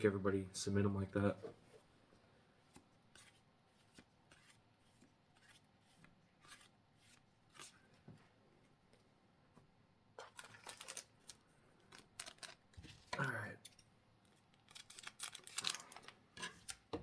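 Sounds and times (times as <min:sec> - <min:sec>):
trading cards and sleeves rustling: 0:10.2 - 0:16.9.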